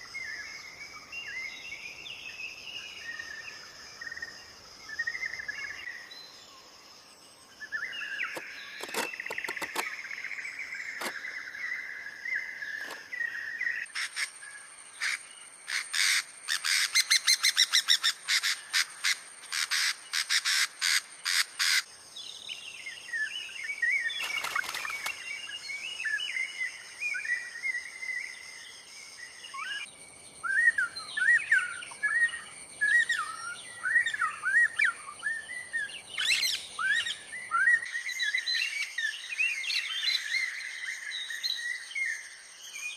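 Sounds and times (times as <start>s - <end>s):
high insect drone: 0.0s - 42.9s
birds calling and chirping: 7.4s - 42.9s
fast sharp clicks: 8.8s - 9.9s.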